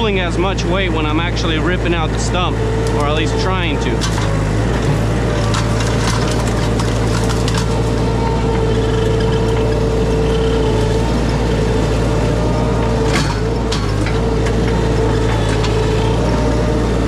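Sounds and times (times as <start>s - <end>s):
small loader engine under load: 0.0s - 17.0s
sharp knocks and cracks: 5.4s - 7.9s.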